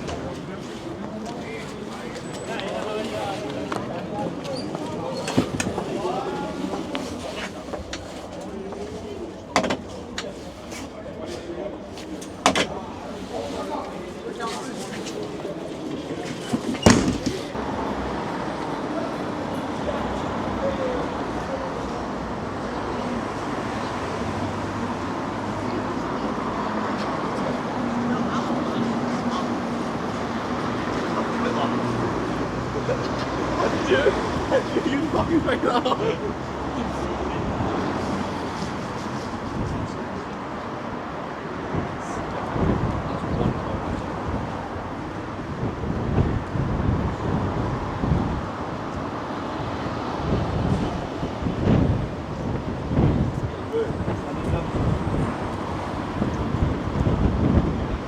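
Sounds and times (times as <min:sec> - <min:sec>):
traffic noise: 0:00.0 - 0:58.0
wind buffeting microphone: 0:37.4 - 0:58.0.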